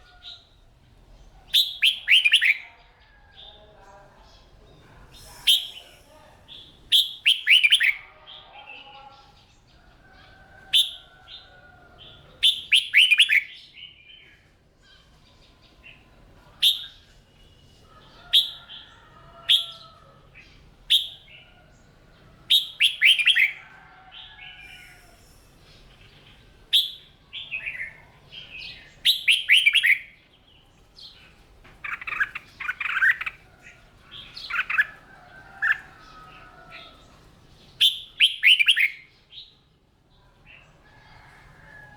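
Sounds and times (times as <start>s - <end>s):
bird whistling song: 1.5s - 2.6s, 5.1s - 6.0s, 6.9s - 8.0s, 12.4s - 13.6s, 16.6s - 17.1s, 20.9s - 21.2s, 22.5s - 23.6s, 26.7s - 28.0s, 28.6s - 30.2s, 37.8s - 39.0s.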